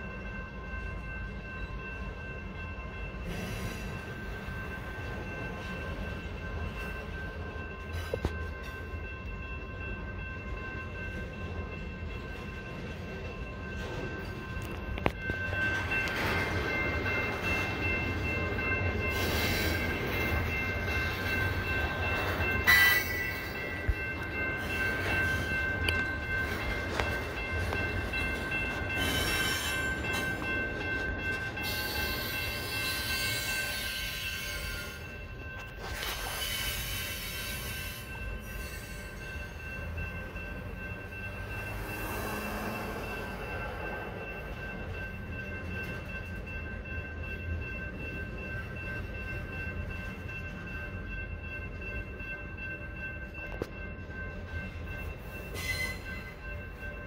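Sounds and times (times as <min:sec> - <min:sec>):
rumble of wheels on rail: 0:00.0 - 0:57.0
high wheel squeal: 0:55.5 - 0:56.3.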